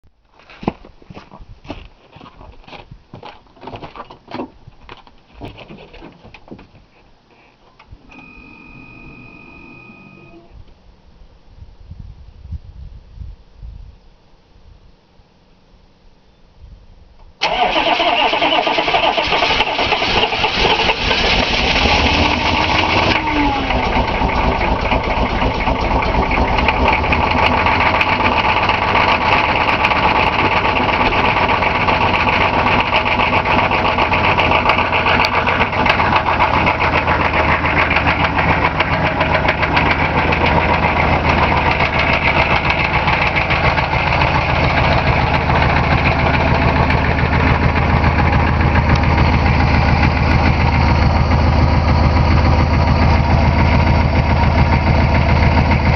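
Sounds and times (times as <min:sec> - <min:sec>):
diesel engine starting and idling: 0:08.0 - 0:10.6, 0:17.4 - 0:55.9.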